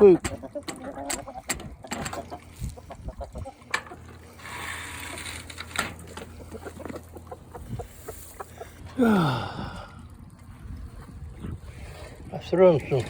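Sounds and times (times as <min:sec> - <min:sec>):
chickens clucking: 0:00.0 - 0:09.0.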